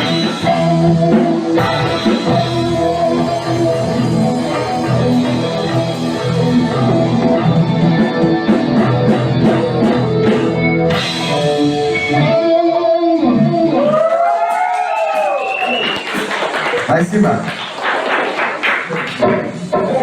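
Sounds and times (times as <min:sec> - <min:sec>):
rock band music: 0:00.0 - 0:14.7.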